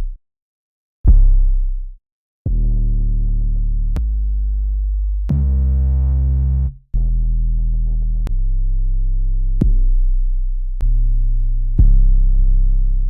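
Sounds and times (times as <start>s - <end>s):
distorted deep bass notes: 1.1s - 13.0s.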